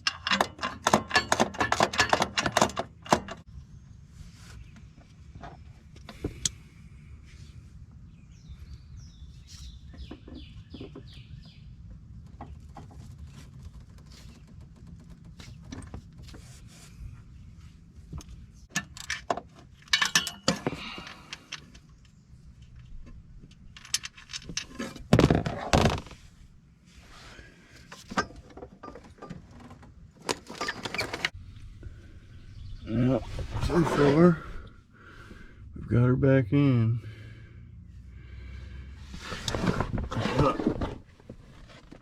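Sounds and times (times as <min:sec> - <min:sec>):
bird chirping: 0:08.0 - 0:12.7, 0:31.4 - 0:33.5.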